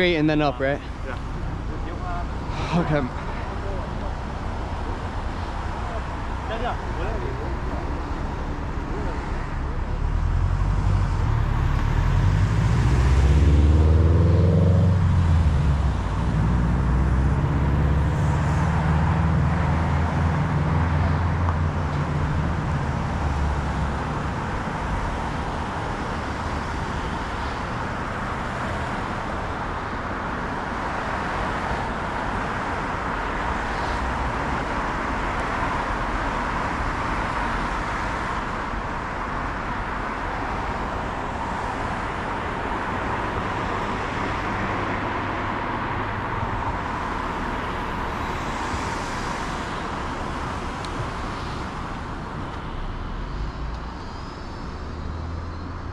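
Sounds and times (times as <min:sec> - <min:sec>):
rushing road and wind noise: 0:00.0 - 0:55.9
motor vehicle passing: 0:05.9 - 0:24.3.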